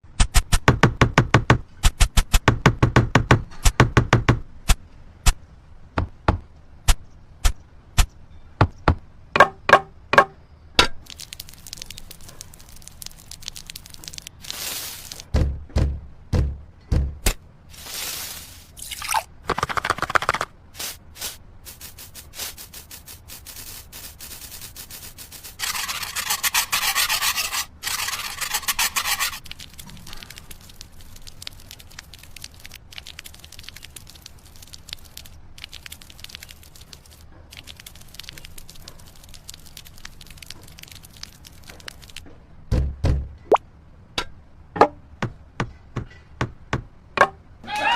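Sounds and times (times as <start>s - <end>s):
steady hiss: 11.1s - 15.3s, 17.7s - 18.8s, 20.7s - 26.5s
tools scraping wet mortar: 23.8s - 31.0s.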